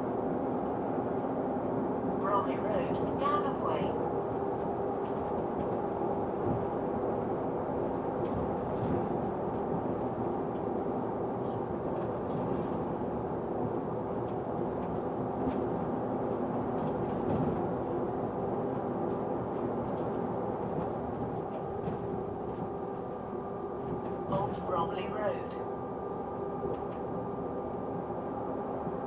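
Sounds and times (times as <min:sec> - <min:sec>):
bus engine and road noise: 0:00.0 - 0:29.0.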